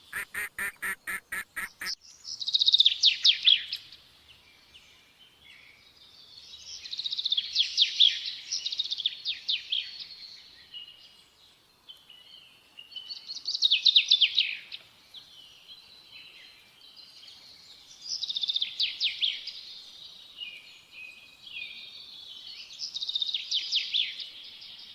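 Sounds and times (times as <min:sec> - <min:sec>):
songbird trilling: 0:00.0 - 0:02.0.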